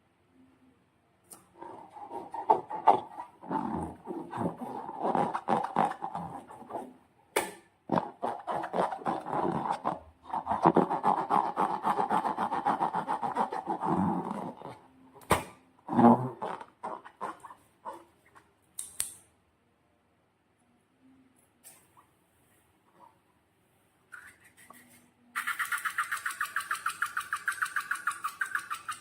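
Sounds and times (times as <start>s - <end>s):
sharp snap: 18.8s - 19.2s.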